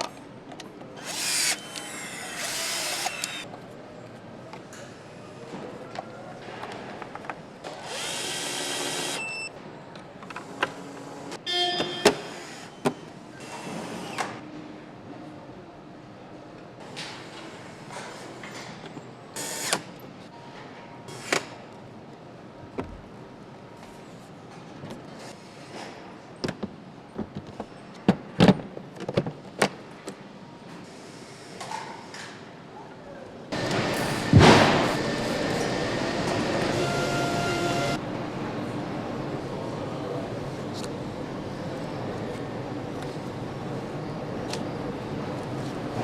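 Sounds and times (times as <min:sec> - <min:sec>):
steady background noise: 0:00.0 - 0:46.0
machine whirring burst: 0:01.0 - 0:03.4, 0:33.6 - 0:37.7
loud hissing rush: 0:33.6 - 0:35.7
sharp knock: 0:34.0 - 0:35.4.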